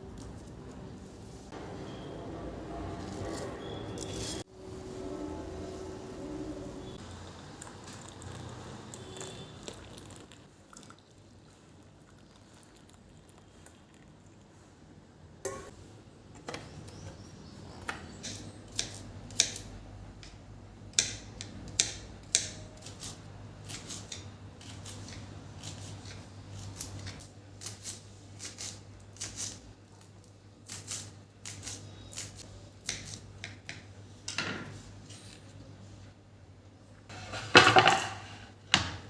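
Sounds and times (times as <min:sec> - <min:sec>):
kitchen utensils clicking and knocking: 0:37.4 - 0:39.0.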